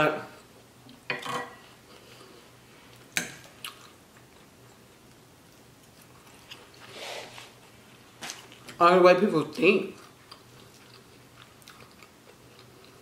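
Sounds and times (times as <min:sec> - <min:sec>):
person chewing food: 0:01.7 - 0:08.8, 0:09.9 - 0:13.0.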